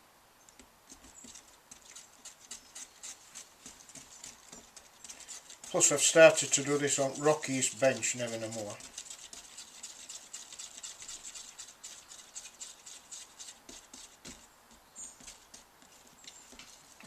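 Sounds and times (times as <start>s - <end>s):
screwdriver scraping paint tin: 0.9s - 14.4s.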